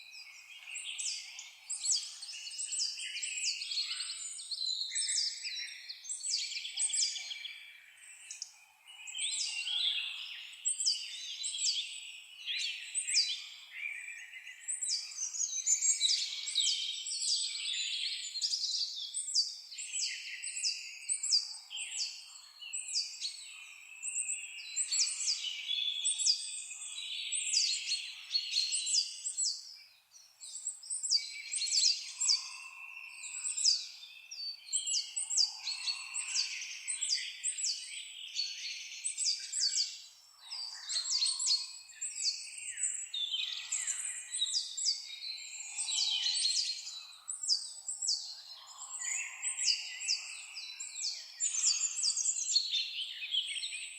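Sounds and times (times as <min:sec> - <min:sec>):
songbirds whistling: 0:00.3 - 0:29.7, 0:40.6 - 0:53.9.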